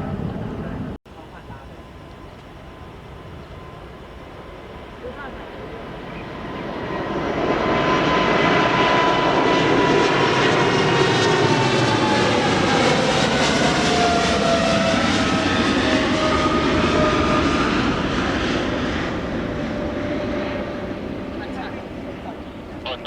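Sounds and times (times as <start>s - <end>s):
jet airliner passing: 0.0s - 23.0s.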